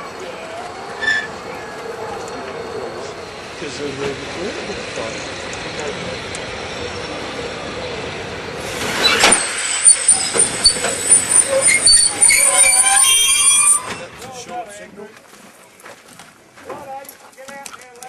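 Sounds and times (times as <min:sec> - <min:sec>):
train rumbling: 0:00.0 - 0:16.9
metallic wheel and brake squeal: 0:00.9 - 0:01.8, 0:09.0 - 0:14.2.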